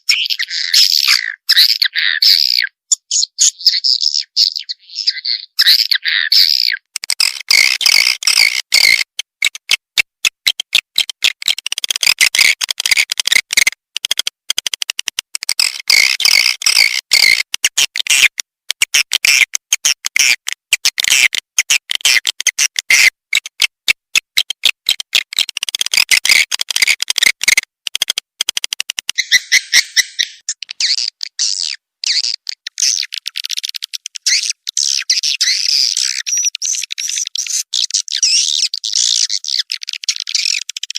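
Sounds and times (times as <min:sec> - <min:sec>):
swiftlets twittering chirps: 0:29.0 - 0:40.7.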